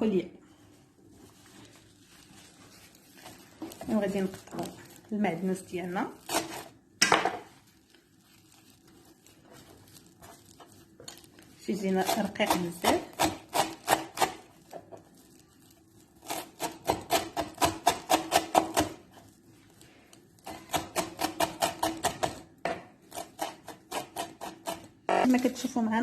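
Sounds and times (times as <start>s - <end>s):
knife chopping on cutting board: 16.4s - 19.0s.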